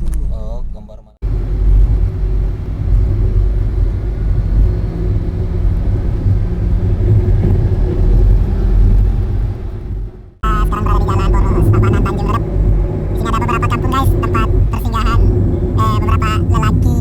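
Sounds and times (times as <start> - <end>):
engine and road rumble: 0.0 - 17.0.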